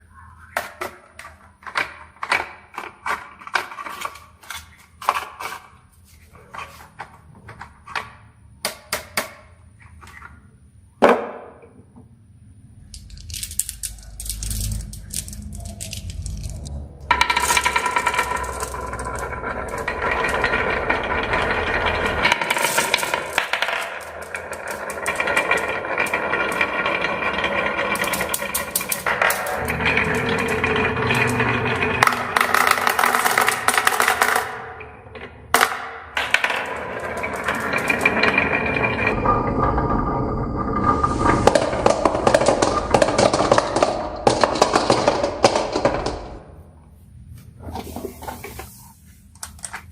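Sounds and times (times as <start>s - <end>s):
marbles clacking down wooden run: 12.9s - 39.9s, 40.7s - 46.4s.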